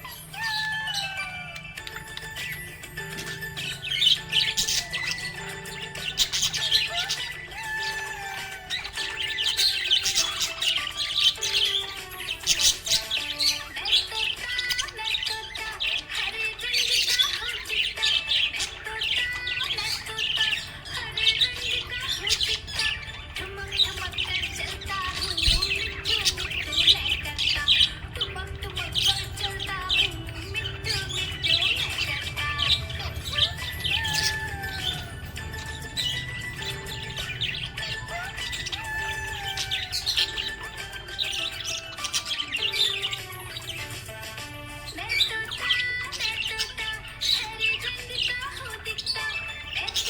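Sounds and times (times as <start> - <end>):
background music with held notes: 0.0 - 50.0
budgerigars chirping: 0.0 - 50.0.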